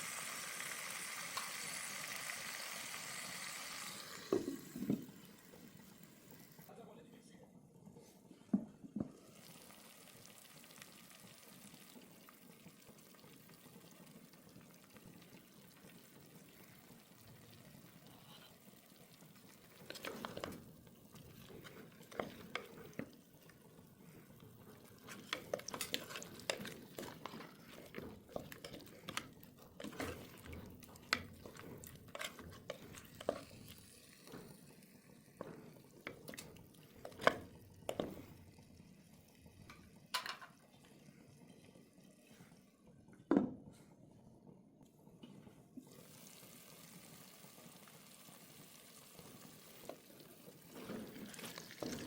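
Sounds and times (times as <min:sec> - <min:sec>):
utensils clinking against cookware: 0:40.2 - 0:40.6.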